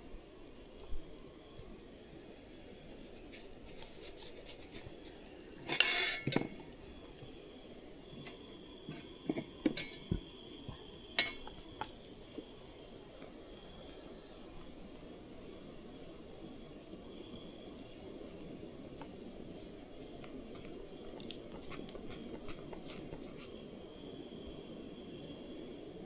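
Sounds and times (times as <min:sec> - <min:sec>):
tableware clinking: 0:05.7 - 0:06.6, 0:09.3 - 0:10.2, 0:11.2 - 0:11.6
tableware scraping rattle: 0:05.7 - 0:06.6.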